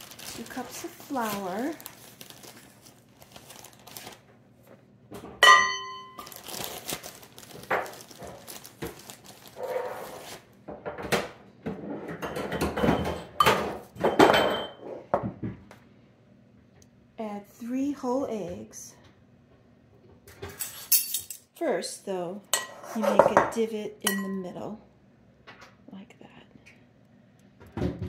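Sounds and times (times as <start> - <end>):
plastic bag crinkling: 0.0 - 4.3, 6.2 - 10.5.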